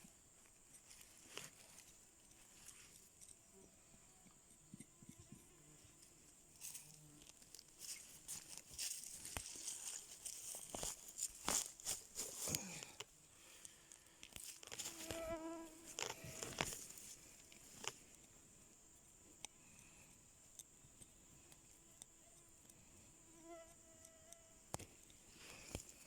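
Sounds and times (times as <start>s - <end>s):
soft rustles and ticks: 0.0s - 26.0s
flying insect buzzing: 14.7s - 17.3s, 23.2s - 24.7s.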